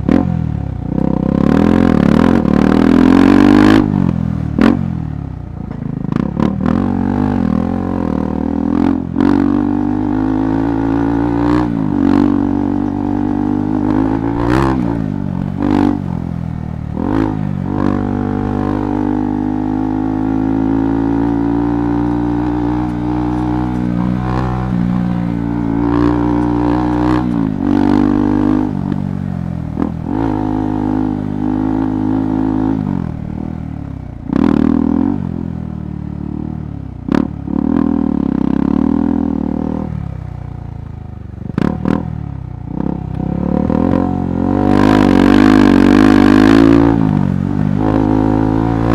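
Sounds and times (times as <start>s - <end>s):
motorcycle engine revving: 0.0s - 48.9s
bike knocking and clattering: 22.1s - 29.2s.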